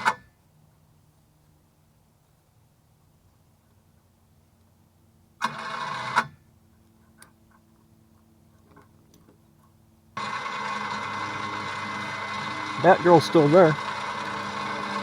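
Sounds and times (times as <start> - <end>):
vehicle engine cranking and starting: 10.2 - 15.0.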